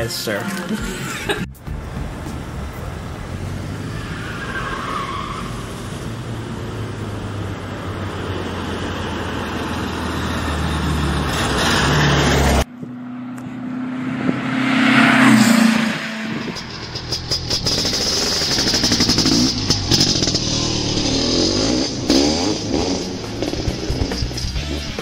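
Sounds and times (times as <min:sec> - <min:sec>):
car engine running: 0:15.3 - 0:25.0.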